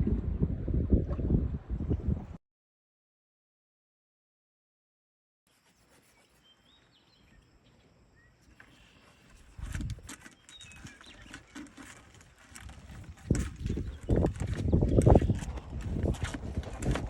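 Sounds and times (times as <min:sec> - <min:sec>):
rustling: 0:05.5 - 0:07.0
faint birds chirping: 0:05.5 - 0:15.9.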